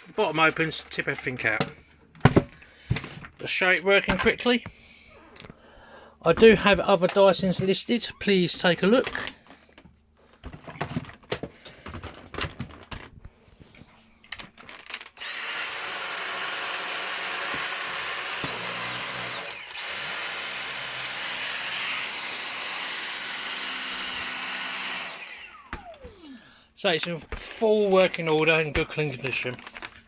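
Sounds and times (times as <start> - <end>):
vacuum motor whine: 15.2 - 26.4.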